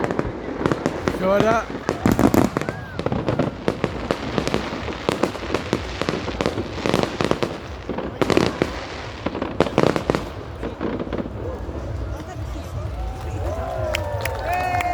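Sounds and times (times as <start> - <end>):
fireworks bangs and crackles: 0.0 - 14.9.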